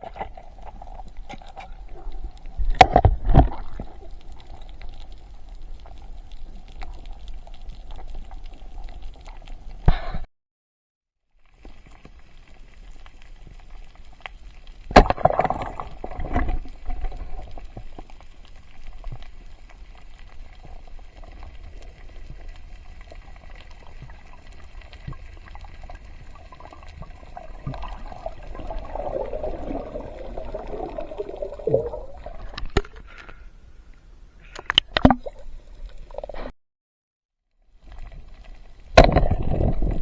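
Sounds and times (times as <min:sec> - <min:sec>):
water gurgling and bubbling: 0:24.3 - 0:33.0.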